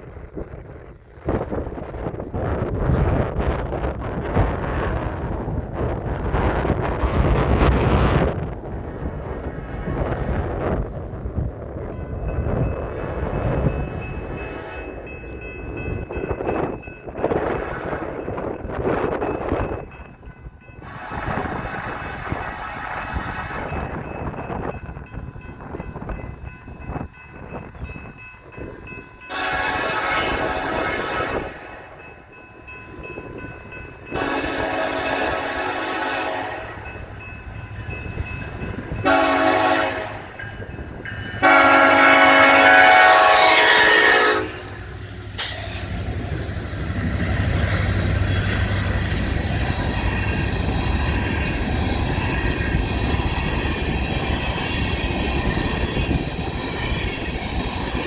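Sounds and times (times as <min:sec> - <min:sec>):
train rumble and wheel noise: 0:00.0 - 0:58.0
locomotive air horn blasts: 0:20.8 - 0:23.7, 0:29.3 - 0:31.9, 0:34.1 - 0:36.9, 0:39.0 - 0:40.4, 0:41.4 - 0:44.7.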